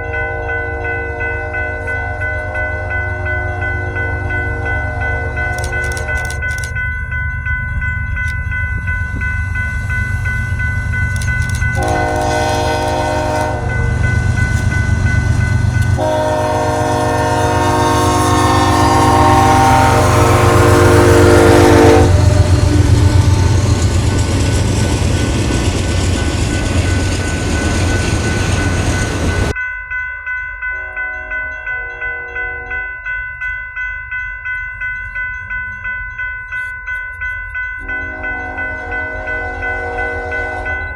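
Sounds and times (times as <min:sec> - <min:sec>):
locomotive horn blasts: 0:00.0 - 0:06.3, 0:11.8 - 0:13.9, 0:16.0 - 0:23.7, 0:30.8 - 0:32.9, 0:37.8 - 0:40.9
heavy rumble of passing train: 0:00.0 - 0:29.6, 0:30.7 - 0:40.9
bell ringing: 0:00.0 - 0:40.9.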